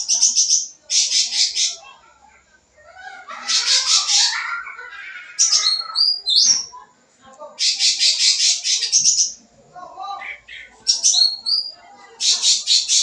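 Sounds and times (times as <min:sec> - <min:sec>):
bulbul singing: 0:05.4 - 0:06.8, 0:07.6 - 0:09.4, 0:10.2 - 0:13.0.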